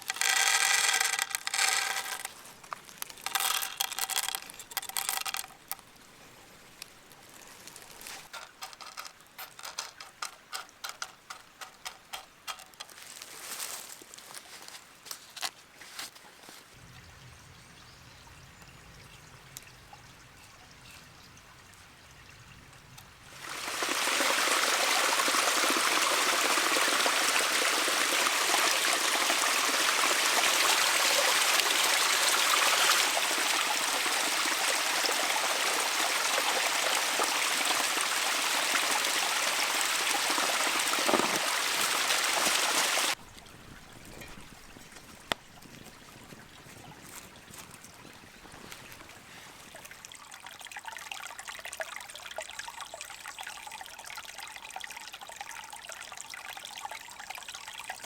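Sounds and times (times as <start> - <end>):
stream water rushing: 0.0 - 2.3, 23.2 - 43.7
faint outdoor ambience: 0.0 - 58.0.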